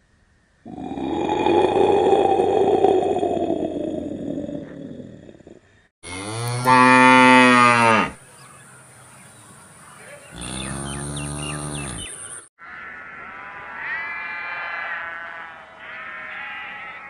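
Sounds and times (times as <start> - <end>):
cattle mooing: 6.0 - 8.2, 10.3 - 12.2.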